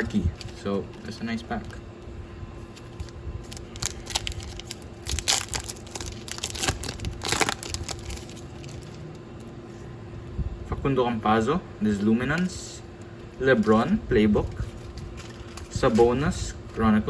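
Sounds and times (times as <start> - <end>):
foil wrapper crinkling and tearing: 2.7 - 9.5, 13.6 - 16.2.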